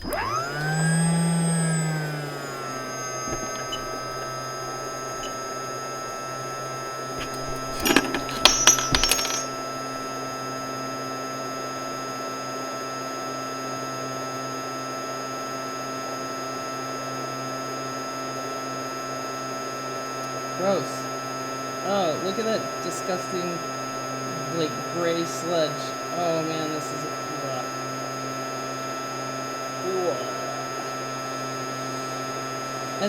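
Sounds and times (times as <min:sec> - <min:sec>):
fume extractor humming: 0:00.0 - 0:10.1
small metallic clicks and clinks: 0:07.2 - 0:09.5.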